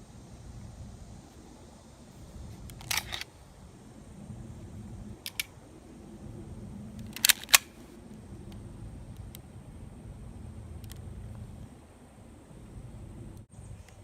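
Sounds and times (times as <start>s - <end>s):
airsoft guns clicking: 2.7s - 3.3s, 5.3s - 5.5s, 7.0s - 7.9s.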